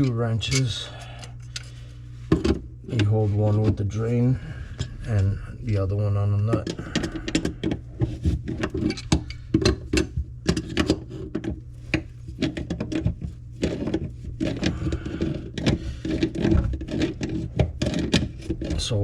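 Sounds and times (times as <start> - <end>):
wrenches clinking on metal drain: 0.0 - 1.7.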